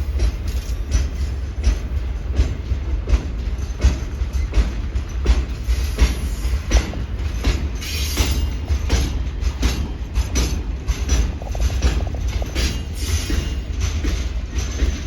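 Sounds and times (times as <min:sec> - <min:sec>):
low train rumble: 0:00.0 - 0:15.0
train wheels clicking over rail joints: 0:00.0 - 0:15.0
high wheel squeal: 0:07.8 - 0:08.6.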